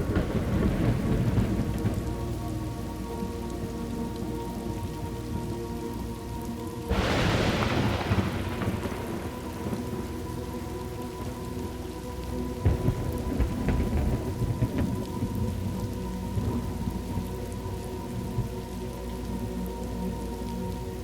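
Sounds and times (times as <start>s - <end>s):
thunder crack and rumble: 0.0s - 2.6s, 6.9s - 10.5s, 12.6s - 17.3s
steady rain: 0.0s - 21.0s.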